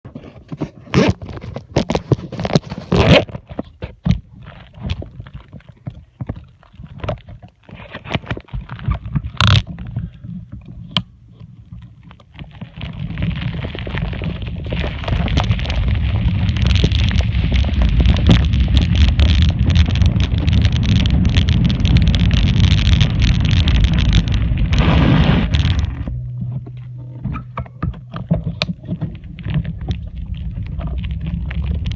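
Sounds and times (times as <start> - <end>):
tyre rumble: 12.4 - 31.9.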